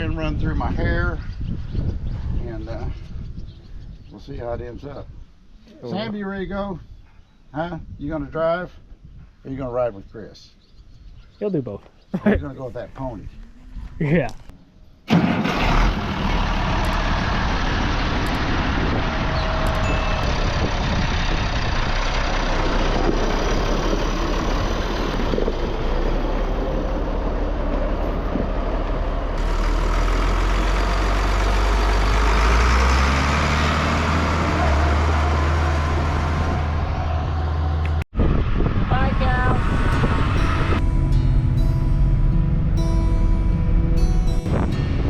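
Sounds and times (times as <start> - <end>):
tractor diesel engine running: 15.1 - 38.0, 38.9 - 45.0.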